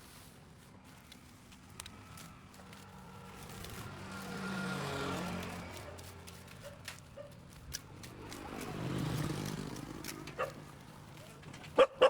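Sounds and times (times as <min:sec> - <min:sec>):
vehicle approaching: 0:01.8 - 0:12.0
vehicle driving past: 0:02.8 - 0:06.6, 0:07.7 - 0:11.8.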